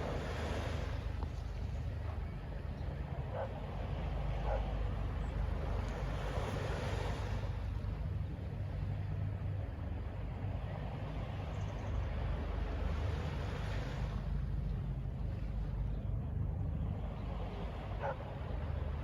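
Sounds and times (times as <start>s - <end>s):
distant city traffic: 0.0s - 19.0s
wind: 0.0s - 19.0s.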